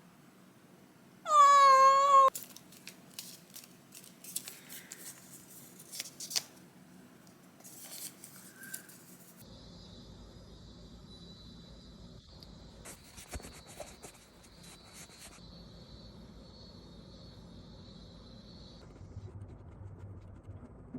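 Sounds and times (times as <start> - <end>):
cat meowing: 1.3 - 2.3.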